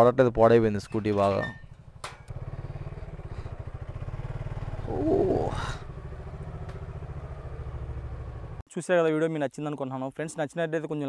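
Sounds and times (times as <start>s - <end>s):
motorcycle engine running at low revs: 1.7s - 8.6s.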